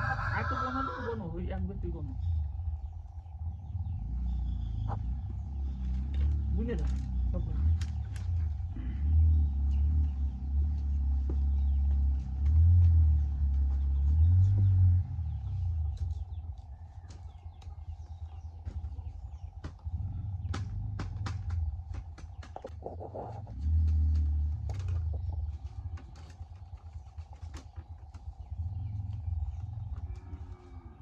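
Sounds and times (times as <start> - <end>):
low rumble: 0.0 - 31.0
bamboo clicks and knocks: 5.8 - 8.6, 18.6 - 28.4.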